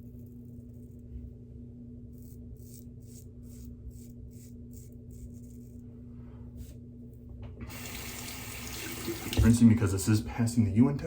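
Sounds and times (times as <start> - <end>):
steady low hum: 0.0 - 7.9
razor scraping stubble: 2.1 - 5.8.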